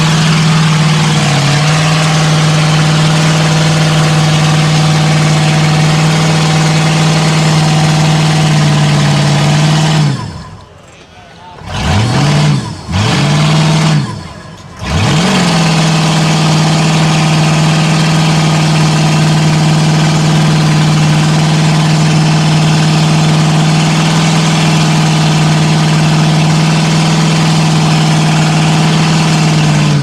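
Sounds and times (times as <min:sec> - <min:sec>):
truck engine revving hard: 0:00.0 - 0:10.9, 0:11.5 - 0:30.0.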